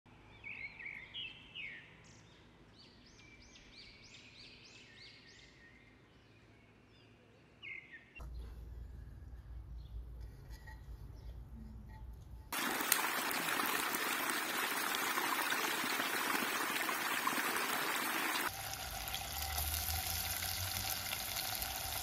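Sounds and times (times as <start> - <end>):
songbirds chirping: 0.1 - 11.6.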